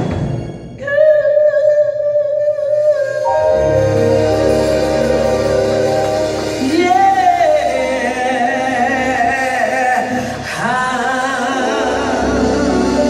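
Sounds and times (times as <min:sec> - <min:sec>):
person singing gospel with vibrato: 0:00.8 - 0:13.0
keyboard chords: 0:03.2 - 0:13.0
low bass: 0:03.4 - 0:10.6, 0:11.7 - 0:13.0.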